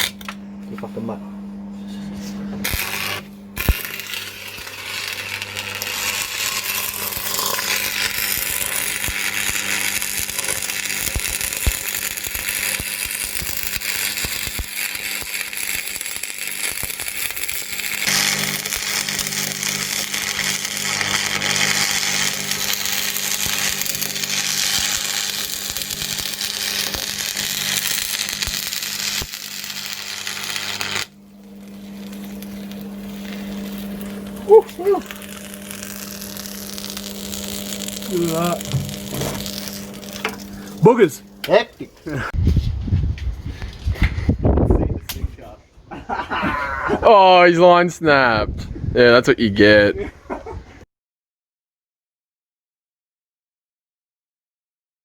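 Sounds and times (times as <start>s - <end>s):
welder hum: 0.0s - 44.5s
welding arc crackling: 2.6s - 42.4s.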